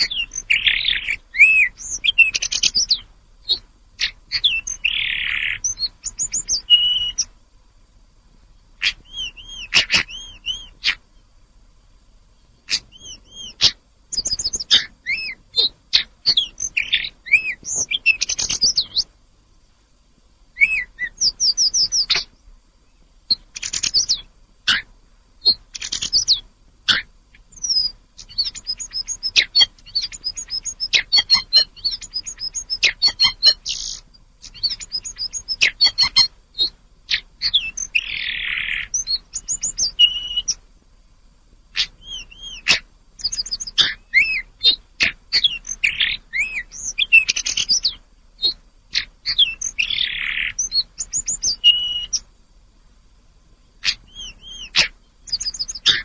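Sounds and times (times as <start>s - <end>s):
bird singing whistled trills: 0.0s - 7.4s, 8.8s - 11.3s, 12.4s - 19.1s, 20.5s - 24.8s, 25.4s - 40.6s, 41.7s - 52.3s, 53.8s - 56.0s.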